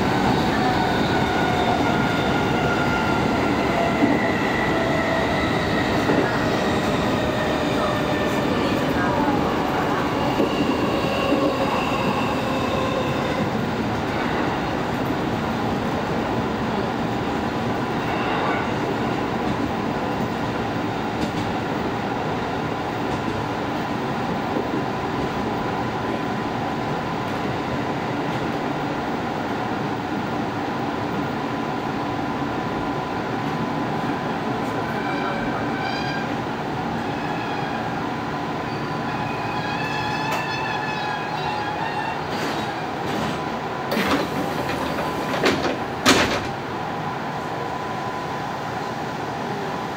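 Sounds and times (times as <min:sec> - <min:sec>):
train wheels rumbling: 0:00.0 - 0:22.0, 0:39.5 - 0:46.7.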